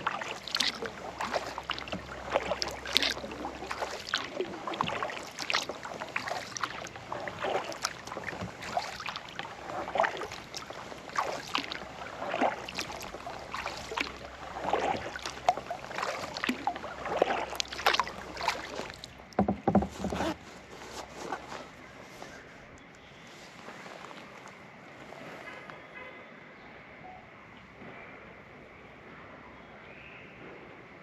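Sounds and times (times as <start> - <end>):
water splashing and dripping: 0.0 - 20.2
paddle strokes in water: 0.0 - 26.1.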